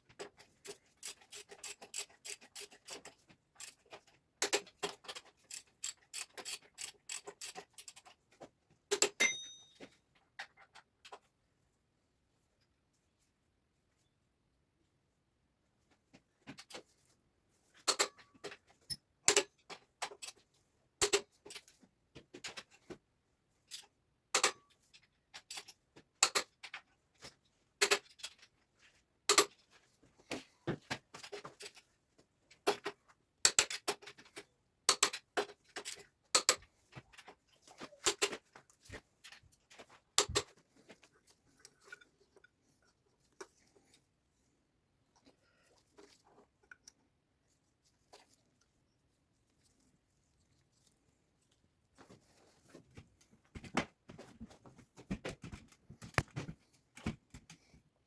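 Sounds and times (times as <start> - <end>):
metal tools clicking and tapping: 0.2 - 8.2, 8.9 - 11.3, 17.8 - 20.4, 21.0 - 21.7, 23.7 - 26.9, 27.8 - 28.5, 29.3 - 29.6, 32.6 - 40.6.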